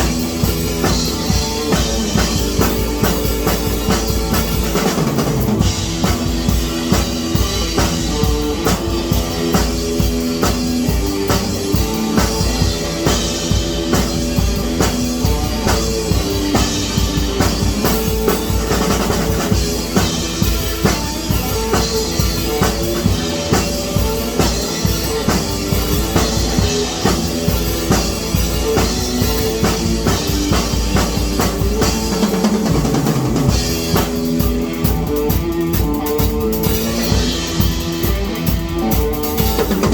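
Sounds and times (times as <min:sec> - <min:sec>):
drum kit driving beat: 0:00.0 - 0:39.9.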